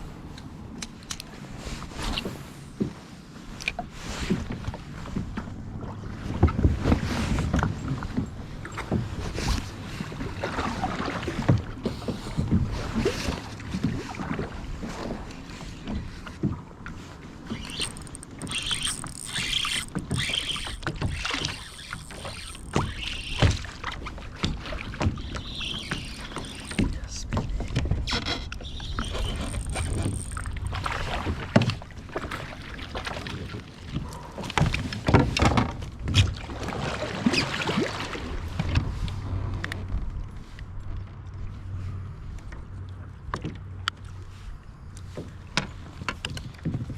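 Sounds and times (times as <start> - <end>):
water slapping against boat hull: 3.7 - 28.2, 28.9 - 39.7.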